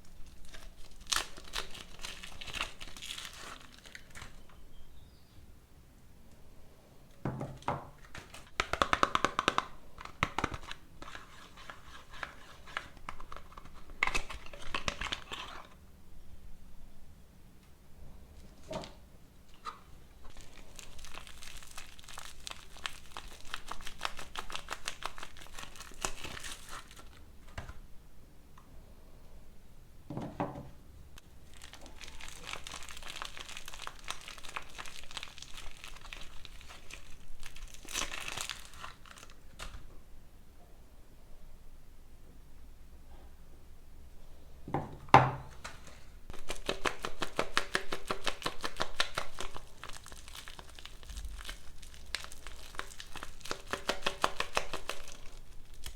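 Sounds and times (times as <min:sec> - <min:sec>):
packaging crinkling and tearing: 0:00.0 - 0:04.6, 0:08.0 - 0:15.8, 0:19.6 - 0:27.8, 0:31.2 - 0:39.9, 0:45.5 - 0:55.9.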